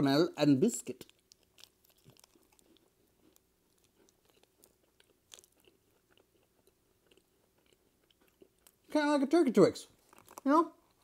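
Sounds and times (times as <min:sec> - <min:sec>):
chewing candy bar: 0:00.8 - 0:11.0
small crunchy clicks: 0:10.0 - 0:11.0.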